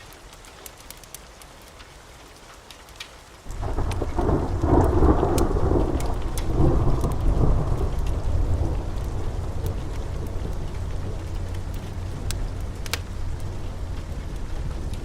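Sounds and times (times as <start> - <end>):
sharp crackles: 0.0 - 15.0
steady rain: 0.0 - 15.0
thunder rumbling: 3.5 - 15.0.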